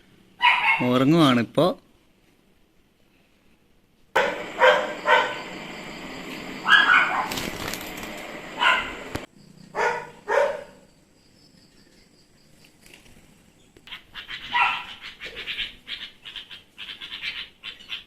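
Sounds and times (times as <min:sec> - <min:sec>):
dog barking: 0:00.4 - 0:00.9, 0:04.2 - 0:05.5, 0:06.6 - 0:07.5, 0:08.6 - 0:09.0, 0:09.7 - 0:10.9, 0:14.5 - 0:15.0.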